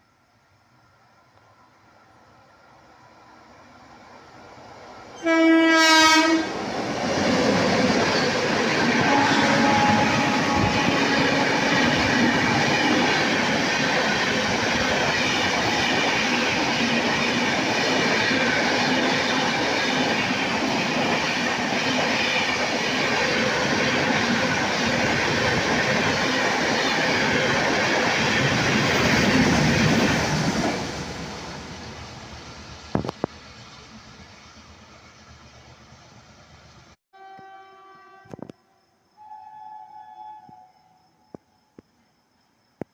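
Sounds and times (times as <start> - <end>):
train rushing over rails: 2.8 - 37.0.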